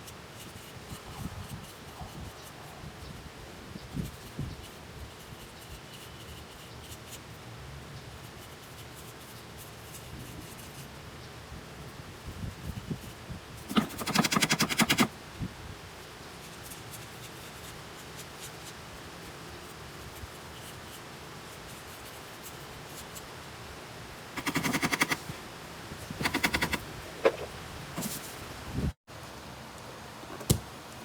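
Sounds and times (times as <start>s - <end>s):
fast mechanical rattle: 13.7s - 15.1s, 24.4s - 25.4s, 26.1s - 28.1s.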